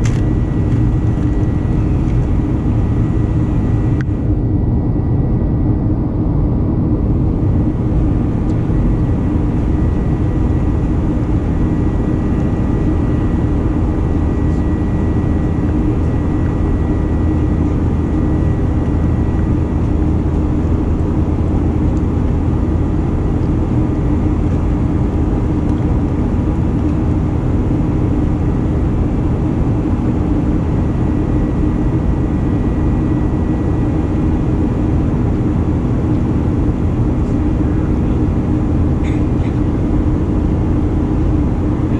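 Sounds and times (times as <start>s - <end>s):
faint whining tones: 0.0s - 26.0s
jet engine drone: 0.0s - 41.9s
low hum: 0.0s - 41.9s.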